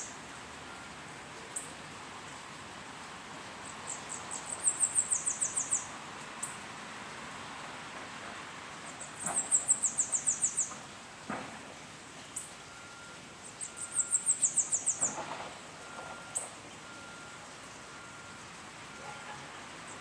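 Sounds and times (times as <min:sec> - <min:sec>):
small songbird singing: 0:03.6 - 0:06.6, 0:08.8 - 0:10.8, 0:13.4 - 0:15.3.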